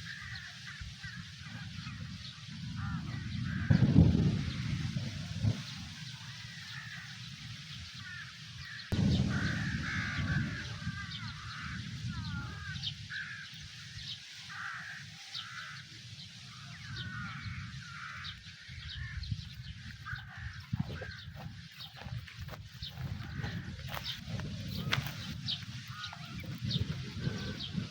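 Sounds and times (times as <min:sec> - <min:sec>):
birds calling: 0:00.0 - 0:27.9
low outdoor rumble: 0:08.9 - 0:12.8.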